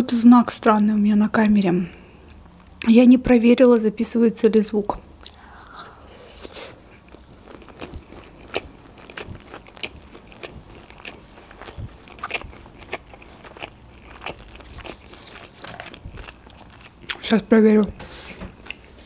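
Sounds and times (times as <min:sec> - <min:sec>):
chewing with soft crunches: 0:05.2 - 0:17.4.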